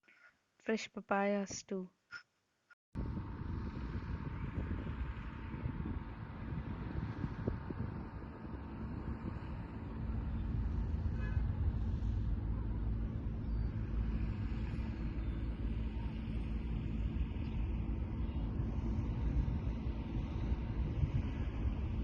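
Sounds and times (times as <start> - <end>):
motor vehicle rumble: 3.0 - 22.0.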